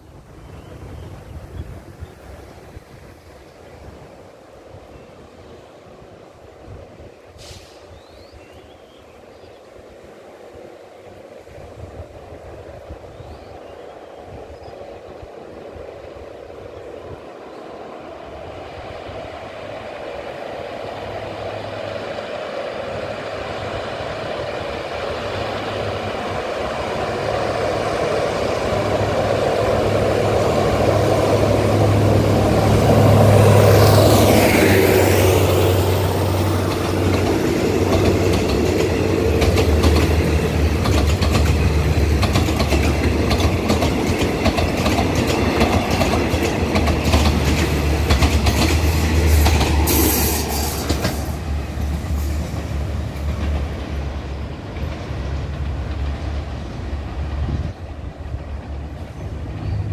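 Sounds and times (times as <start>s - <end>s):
diesel locomotive engine: 0.0s - 59.9s
falling whine of locomotive: 5.0s - 59.9s
wheels clicking over rail joints: 36.4s - 56.6s.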